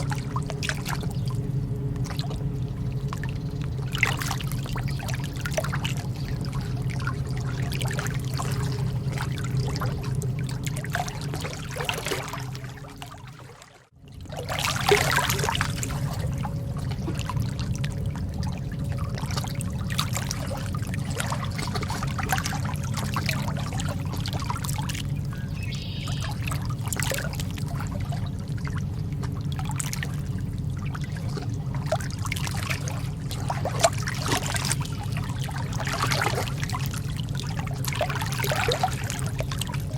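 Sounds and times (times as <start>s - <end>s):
lake water trickling and splashing: 0.0s - 39.9s.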